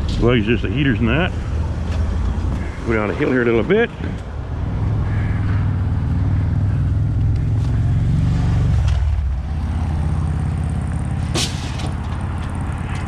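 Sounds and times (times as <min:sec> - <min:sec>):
pickup truck engine running: 0:09.4 - 0:13.0.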